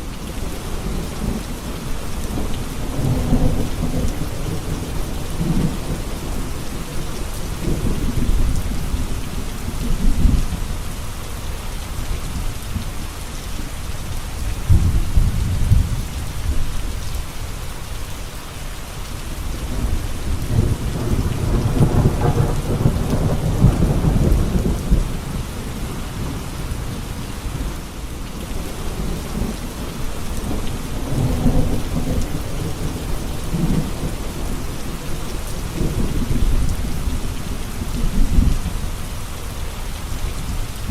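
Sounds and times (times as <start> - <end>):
steady rain falling: 0.0 - 40.9
thunder rumbling: 2.3 - 7.0, 14.6 - 16.8, 19.6 - 27.8, 28.4 - 38.9.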